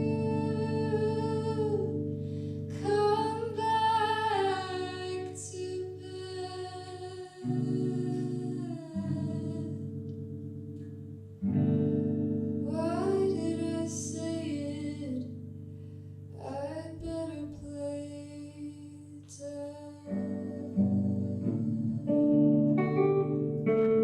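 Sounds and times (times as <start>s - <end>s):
guitar chords ringing: 0.0s - 18.5s, 19.3s - 24.0s
person humming a melody: 2.7s - 9.8s, 16.4s - 23.2s.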